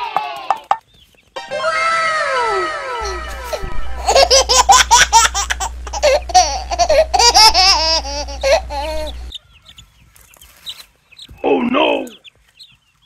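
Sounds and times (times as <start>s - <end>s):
low hum: 1.4s - 9.3s
young child giggling: 3.4s - 9.3s.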